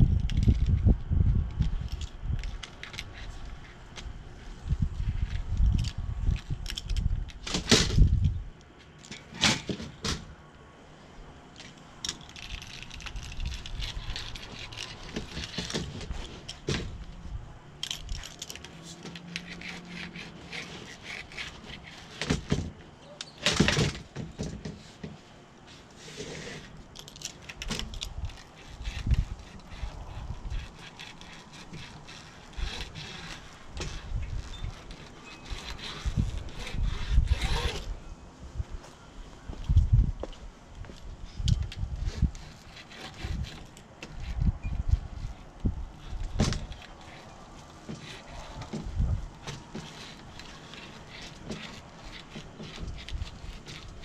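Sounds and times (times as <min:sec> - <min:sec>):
hands and tools clicking and scraping: 0:00.0 - 0:10.2, 0:11.5 - 0:37.9, 0:39.6 - 0:54.0.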